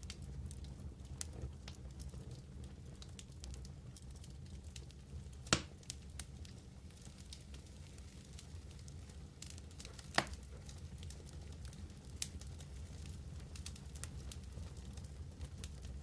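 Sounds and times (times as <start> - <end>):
wood fire crackling: 0.0 - 16.0
loud pop of fire: 5.4 - 5.9, 9.8 - 10.5.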